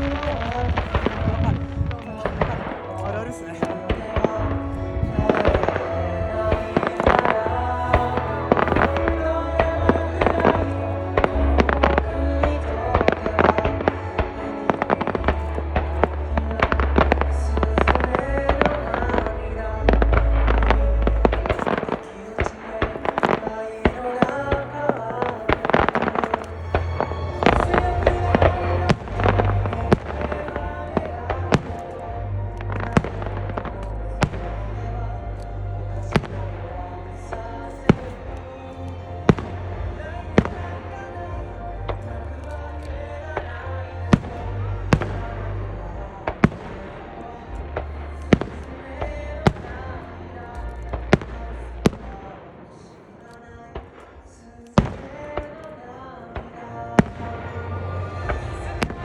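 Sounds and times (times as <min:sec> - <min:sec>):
fireworks cracking and popping: 0:00.0 - 0:19.3, 0:20.0 - 0:34.8, 0:46.2 - 0:49.9, 0:50.5 - 0:59.0
music with heavy bass: 0:00.0 - 0:52.2, 0:56.6 - 0:59.0.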